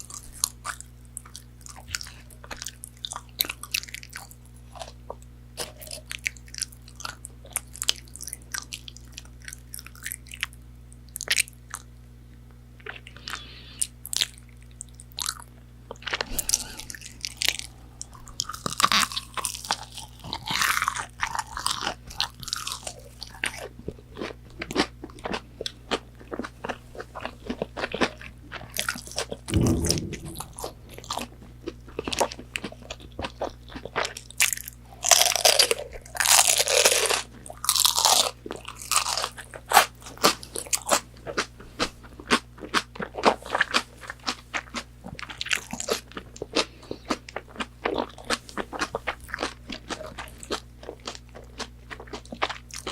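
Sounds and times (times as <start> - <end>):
crunchy chewing of fried food: 0.0 - 30.0, 31.6 - 52.9
low thump: 29.5 - 31.2.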